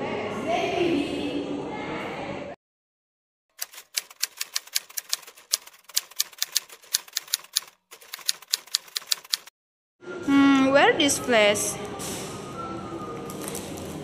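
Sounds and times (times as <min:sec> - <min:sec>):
typewriter keystrokes: 0:03.6 - 0:09.5.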